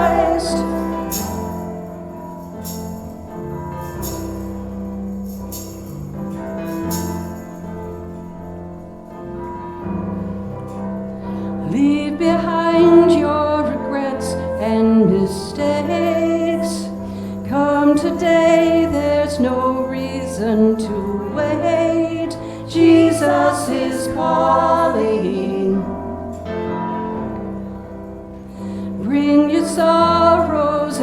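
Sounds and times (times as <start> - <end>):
person singing: 0.0 - 2.8, 11.6 - 26.8, 28.8 - 31.0
tambourine or cymbal hits: 0.0 - 8.0
worship band playing slow song: 0.0 - 9.0, 9.8 - 31.0.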